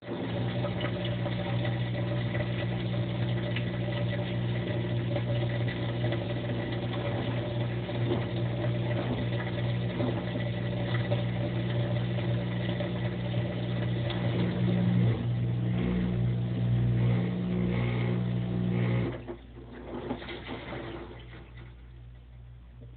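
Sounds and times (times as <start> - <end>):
washing machine drain pump humming: 0.0 - 22.9.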